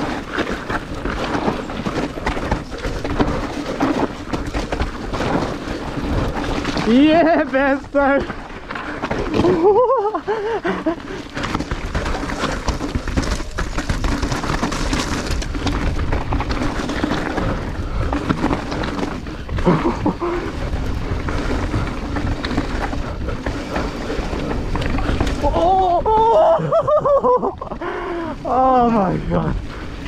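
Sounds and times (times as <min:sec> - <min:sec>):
bike knocks and rattles: 0:00.0 - 0:27.7
wind and tyre noise: 0:00.0 - 0:30.0.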